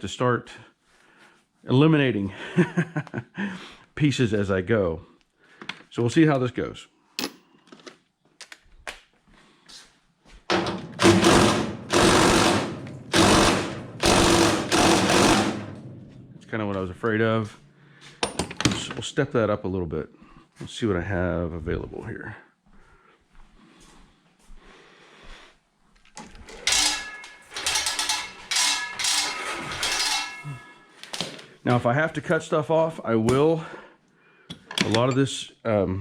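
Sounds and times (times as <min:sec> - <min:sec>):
impact wrench hammering: 0:10.5 - 0:16.5, 0:26.5 - 0:30.7
metal hand tools clattering: 0:26.4 - 0:31.1.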